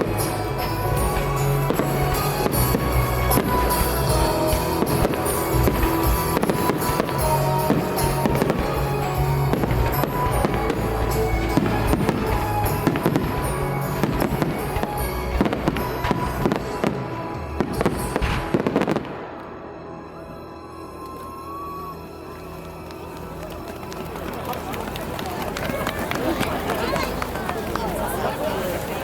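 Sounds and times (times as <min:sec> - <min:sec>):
loud music with steady bass: 0:00.0 - 0:16.8
fireworks bursting and crackling: 0:00.0 - 0:19.8.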